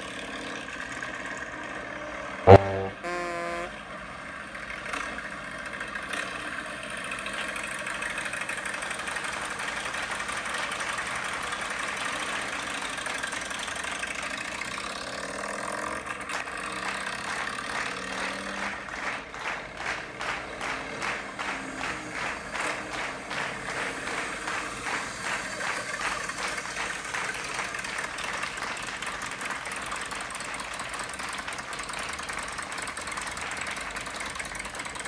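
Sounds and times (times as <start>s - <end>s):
steady din: 2.5s - 3.7s.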